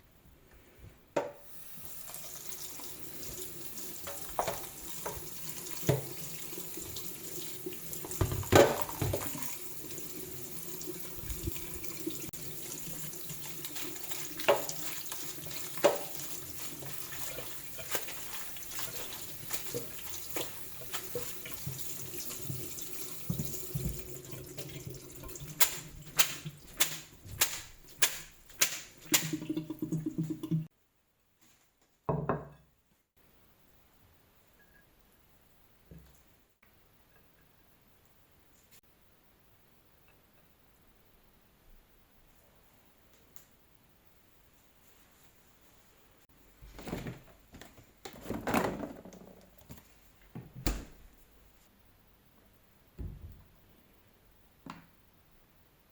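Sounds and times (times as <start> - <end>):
tap running into sink: 1.2 - 6.4, 8.0 - 9.6, 14.1 - 16.4, 19.0 - 30.6
items knocking in sink: 4.0 - 6.2, 8.1 - 9.5, 19.5 - 24.2, 25.2 - 30.6, 46.6 - 49.8.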